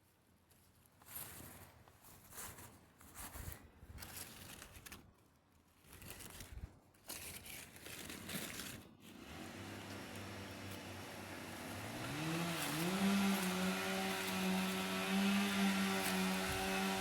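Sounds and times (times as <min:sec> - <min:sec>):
rustling and crinkling: 0:00.0 - 0:10.9.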